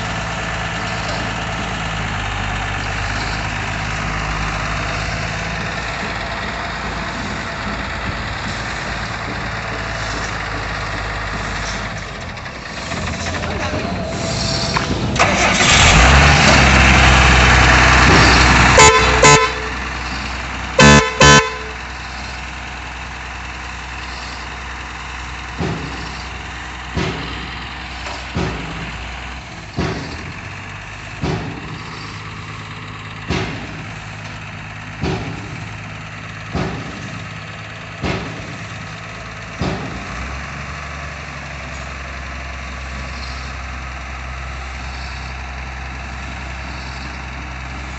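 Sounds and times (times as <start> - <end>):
heavy truck engine: 0.0 - 47.9
truck horn honks: 18.6 - 19.9, 20.8 - 21.9.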